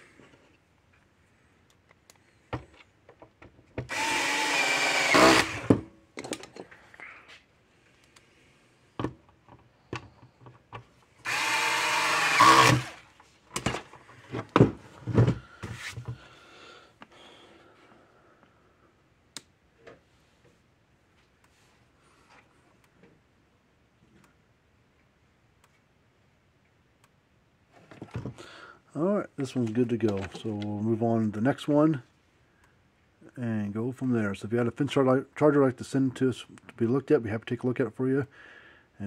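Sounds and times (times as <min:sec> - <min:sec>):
power drill driving screws: 0:03.9 - 0:05.8, 0:11.2 - 0:13.0.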